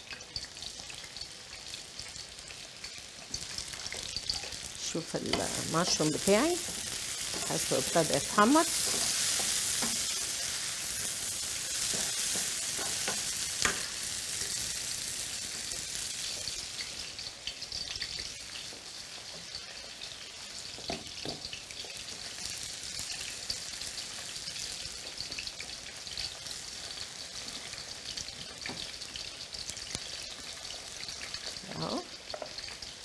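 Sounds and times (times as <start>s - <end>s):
food sizzling in hot oil: 0.0s - 33.0s
crackling pops: 3.3s - 14.5s.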